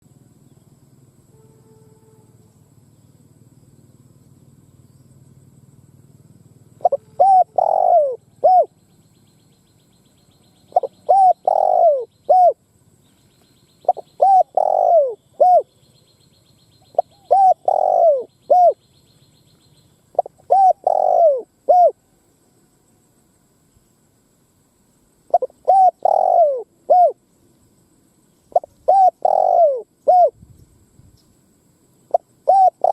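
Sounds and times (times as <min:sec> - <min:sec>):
dove cooing: 0:06.7 - 0:08.8, 0:10.6 - 0:12.6, 0:13.8 - 0:15.8, 0:16.8 - 0:18.9, 0:20.1 - 0:22.0, 0:25.3 - 0:27.2, 0:28.5 - 0:30.4, 0:32.1 - 0:32.9.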